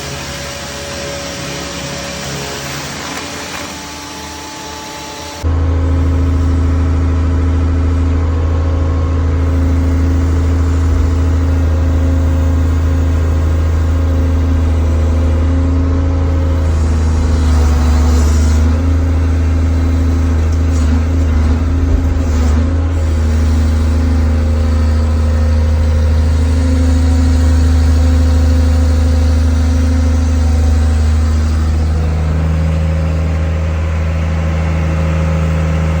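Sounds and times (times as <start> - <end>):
saw cutting through log: 0.0 - 5.5, 9.3 - 33.6
sawmill engine running: 0.0 - 36.0.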